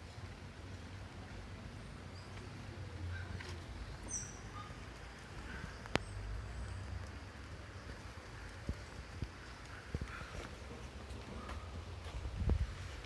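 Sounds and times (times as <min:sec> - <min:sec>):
bird chirps: 0:04.0 - 0:04.7.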